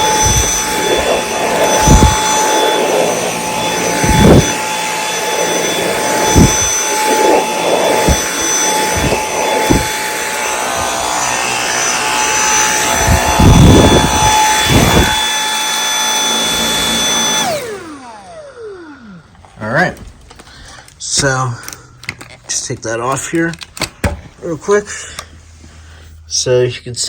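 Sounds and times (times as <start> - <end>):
debris rattling in vacuum: 0.0 - 15.3
handheld vacuum motor whine: 0.0 - 19.6.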